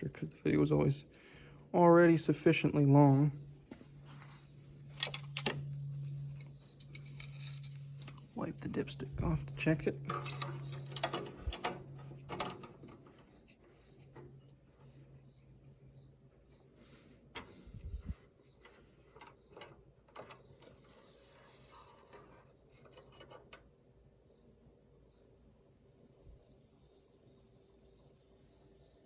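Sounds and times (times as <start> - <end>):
high thin whine: 1.7 - 22.6
light clicks and knocks: 3.6 - 15.1, 17.3 - 23.7.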